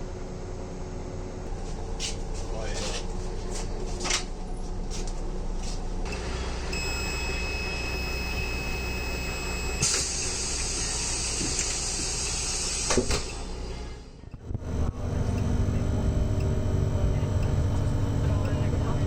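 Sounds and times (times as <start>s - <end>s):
diesel engine hum: 0.0s - 19.0s
steady high beep: 6.1s - 10.5s, 15.2s - 19.0s
air hiss: 9.8s - 13.4s.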